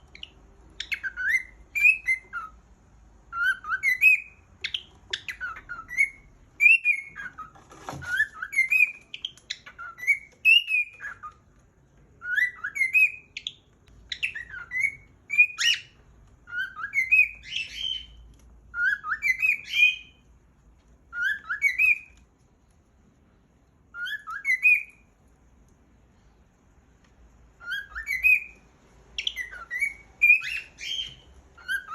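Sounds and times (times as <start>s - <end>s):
cockatiel whistling: 0.1s - 2.6s, 3.3s - 11.5s, 12.2s - 20.2s, 21.1s - 22.2s, 23.9s - 25.1s, 27.6s - 31.9s.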